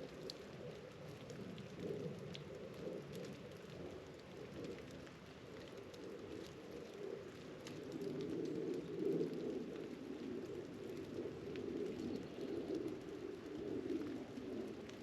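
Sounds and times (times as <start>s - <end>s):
faint ticks: 0.0s - 15.0s
mourning doves cooing: 6.0s - 15.0s.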